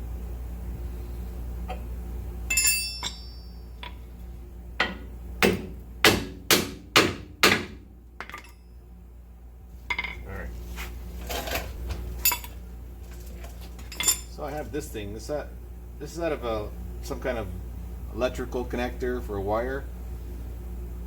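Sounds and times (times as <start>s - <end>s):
metal clinks: 2.5s - 4.1s, 8.2s - 8.8s, 12.2s - 12.6s, 13.8s - 14.4s
hammer striking metal: 4.8s - 8.6s.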